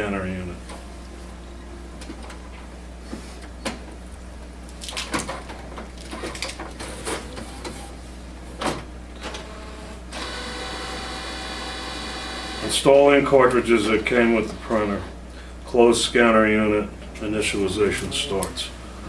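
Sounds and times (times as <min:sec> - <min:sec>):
printer motor whine: 0:08.6 - 0:15.2.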